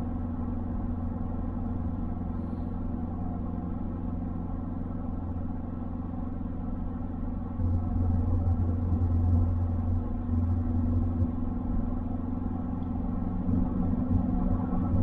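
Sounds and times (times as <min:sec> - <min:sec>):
car engine drone: 0:00.0 - 0:15.0
road noise: 0:07.6 - 0:15.0.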